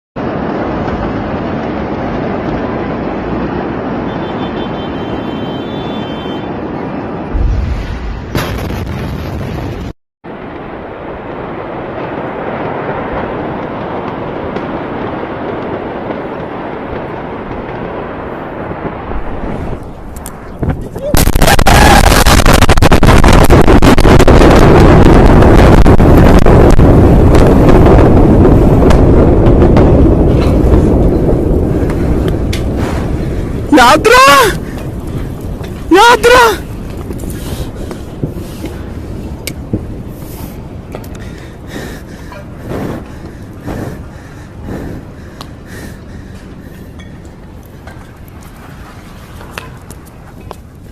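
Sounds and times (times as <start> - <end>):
explosion rushing roar: 6.5 - 46.9
sharp cracks: 21.2 - 24.8.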